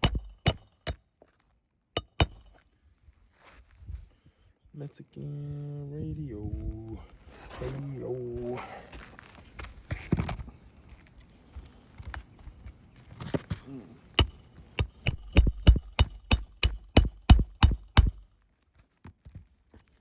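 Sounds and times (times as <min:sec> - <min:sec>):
hammer striking metal: 0:00.0 - 0:01.0, 0:02.0 - 0:02.6, 0:14.2 - 0:18.2.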